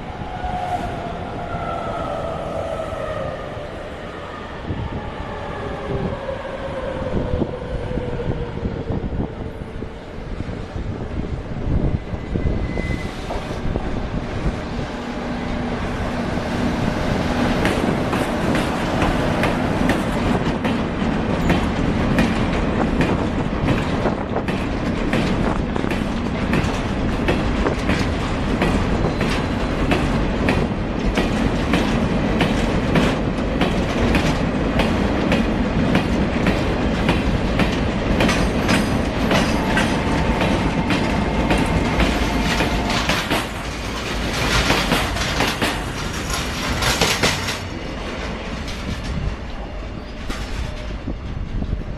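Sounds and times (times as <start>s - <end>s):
freight train wheels clacking: 15.3s - 51.8s.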